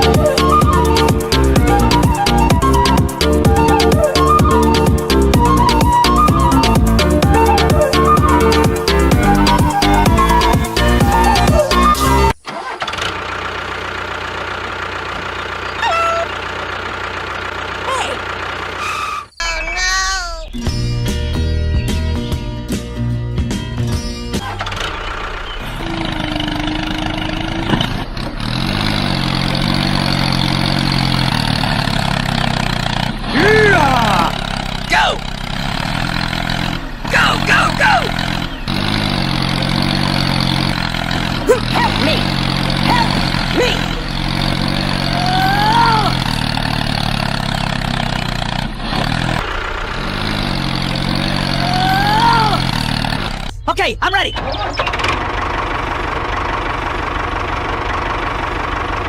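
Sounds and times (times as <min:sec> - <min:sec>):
tractor engine running: 0:00.0 - 0:59.0
hum rising in pitch: 0:25.0 - 0:27.8.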